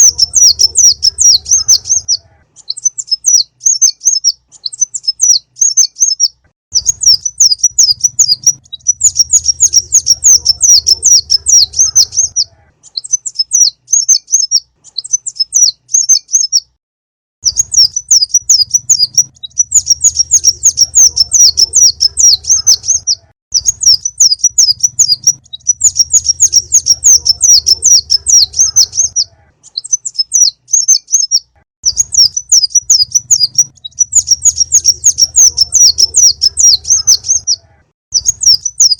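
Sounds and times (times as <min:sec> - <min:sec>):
sunbird singing high chirps: 0:00.0 - 0:16.8, 0:17.4 - 0:38.9.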